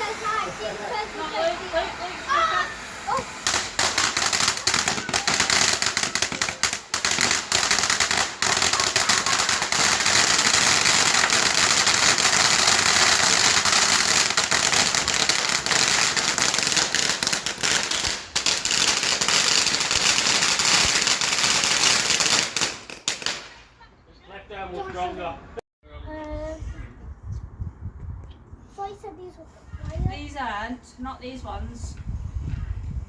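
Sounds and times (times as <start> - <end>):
firework crackling and popping: 0.0 - 23.7.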